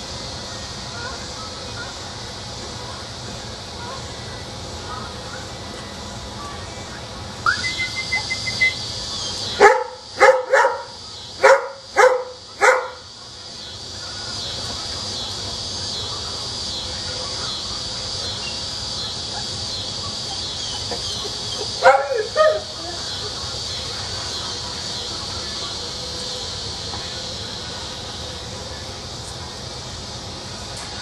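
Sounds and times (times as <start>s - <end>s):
rapid high chatter: 0.0s - 31.0s
steady high chirring: 0.0s - 31.0s
dog barking: 9.5s - 13.1s, 19.3s - 22.9s.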